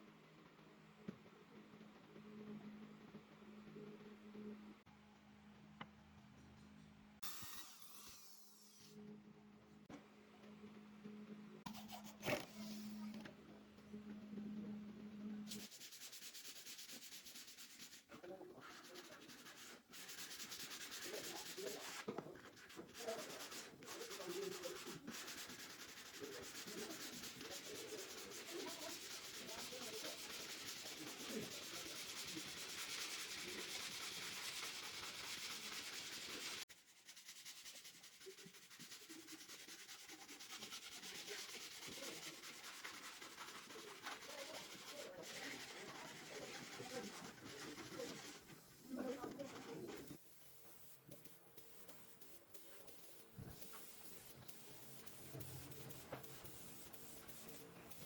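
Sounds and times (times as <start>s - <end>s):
sandpaper rubbing on wood: 15.5s - 50.2s.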